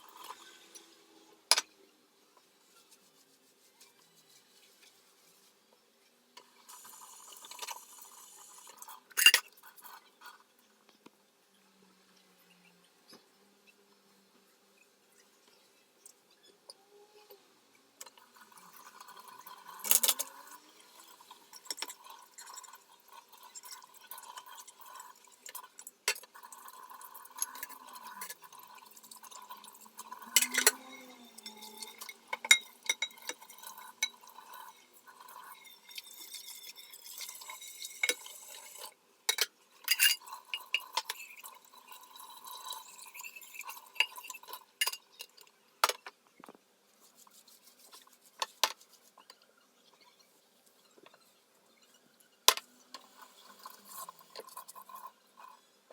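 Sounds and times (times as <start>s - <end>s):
glass objects clinking and knocking: 30.3s - 34.3s, 39.3s - 46.0s.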